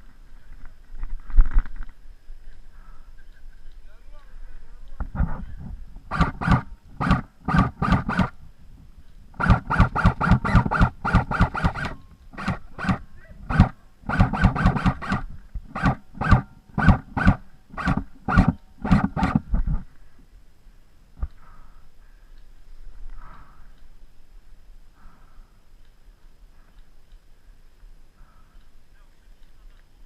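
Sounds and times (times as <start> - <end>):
airsoft gun firing single shots: 6.1 - 8.4, 9.4 - 19.4.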